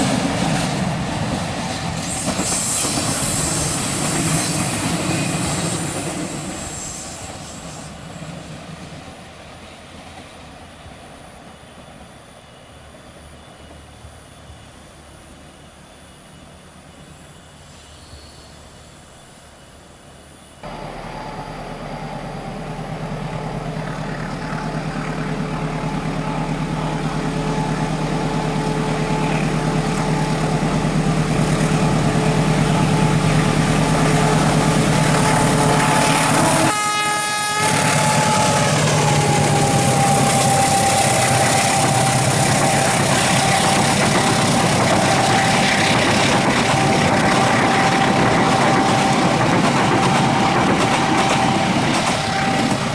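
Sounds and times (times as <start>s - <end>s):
train running on rails: 0.0s - 52.9s
steady humming tone: 20.6s - 36.7s.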